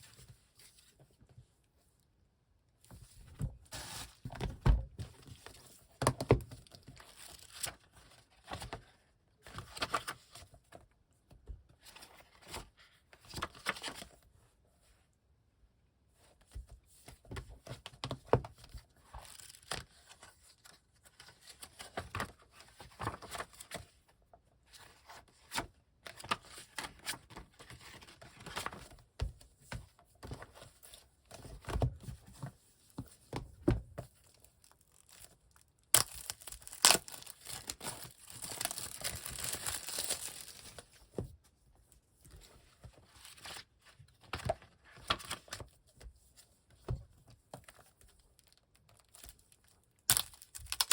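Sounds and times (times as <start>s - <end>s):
packaging tearing and crinkling: 34.3s - 40.8s, 50.1s - 50.9s.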